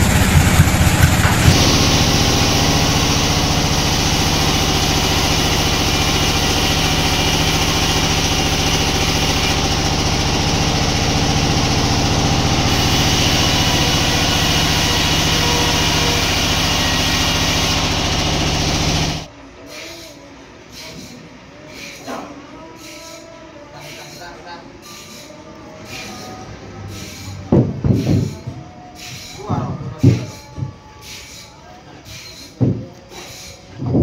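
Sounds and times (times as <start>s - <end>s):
heavy sawmill engine running: 0.0s - 19.3s, 24.8s - 31.5s.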